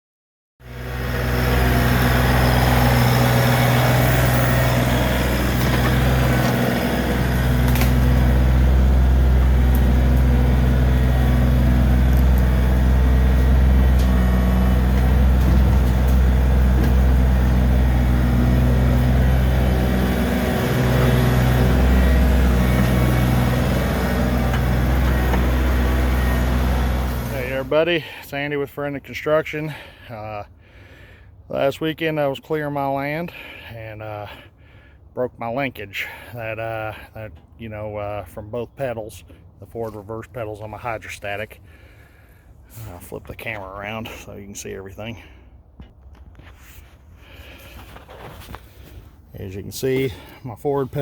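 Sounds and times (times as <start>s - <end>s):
tractor diesel engine idling: 0.6s - 31.7s, 47.2s - 51.0s.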